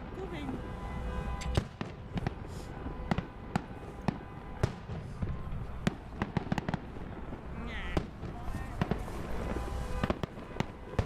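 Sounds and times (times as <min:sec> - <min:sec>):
fireworks bangs and cracks: 0:00.0 - 0:11.0.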